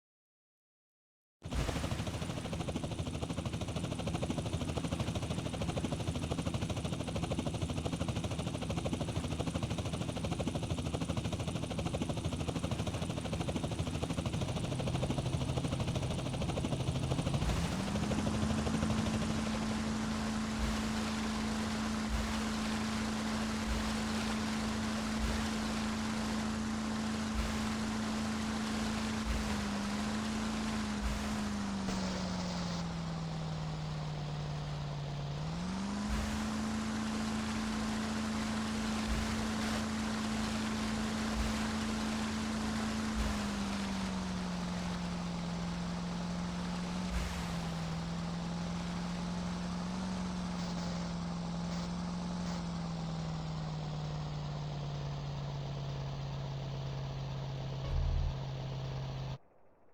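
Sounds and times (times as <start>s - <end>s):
motorboat engine running: 1.4s - 59.9s
steady rushing noise: 11.8s - 52.9s, 54.3s - 59.4s.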